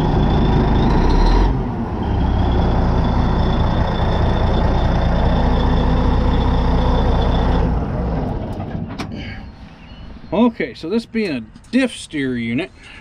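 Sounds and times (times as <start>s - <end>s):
bulldozer diesel engine running: 0.0s - 10.5s.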